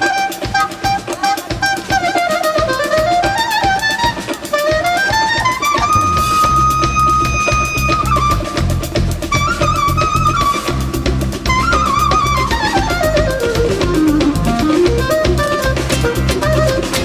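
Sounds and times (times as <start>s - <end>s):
ornamented lead melody: 2.8s - 17.0s
drum hits: 5.7s - 17.0s
bass: 5.8s - 17.0s.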